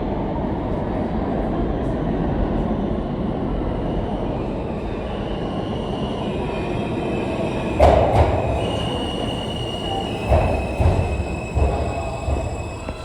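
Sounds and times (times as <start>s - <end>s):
subway train wheels squealing: 0.1s - 13.0s
wheels clunking over rail joints: 7.6s - 13.0s.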